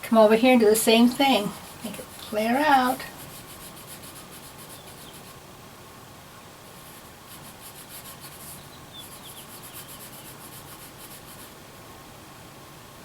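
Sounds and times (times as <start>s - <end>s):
pencil scratching on paper: 1.5s - 5.4s, 6.7s - 11.6s.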